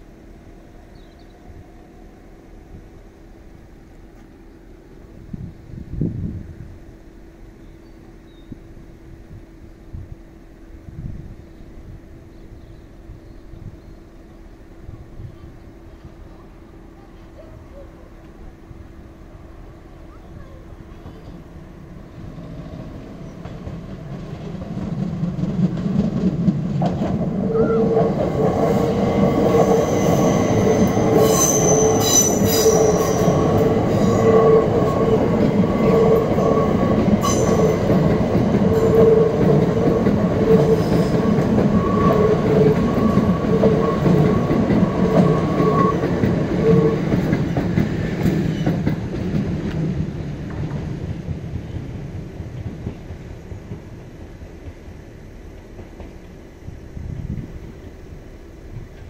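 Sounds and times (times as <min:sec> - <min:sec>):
train wheels rumbling on rails: 0:00.0 - 0:59.0
wheel flange squeal: 0:29.4 - 0:37.9, 0:40.4 - 0:47.2.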